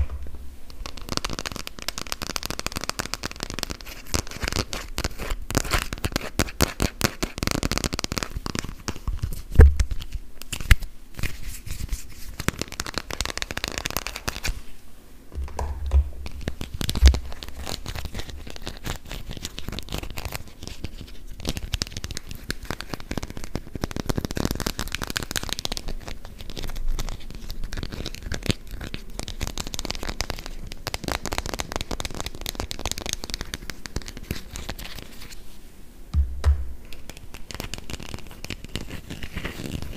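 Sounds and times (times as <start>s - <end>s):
louder knocks: 15.4s - 16.3s, 36.1s - 36.8s.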